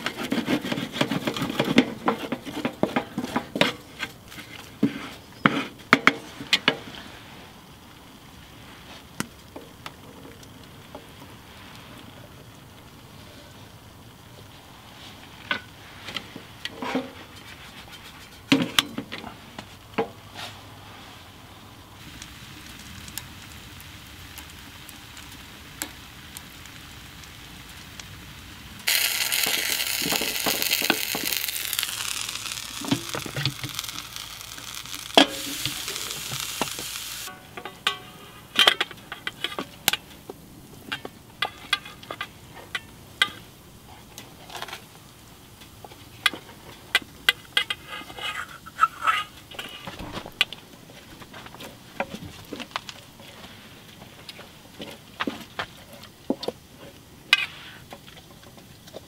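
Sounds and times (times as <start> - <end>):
wooden spoon scraping metal tray: 0.0 - 5.8
food sizzling loudly in metal tray: 22.0 - 40.0.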